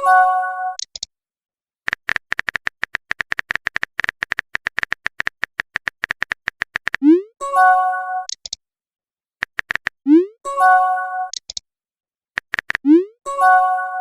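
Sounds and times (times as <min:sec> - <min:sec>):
keyboard typing clicks: 0:00.8 - 0:01.1, 0:01.9 - 0:07.1, 0:08.3 - 0:08.6, 0:09.4 - 0:10.1, 0:11.3 - 0:11.6, 0:12.4 - 0:13.0.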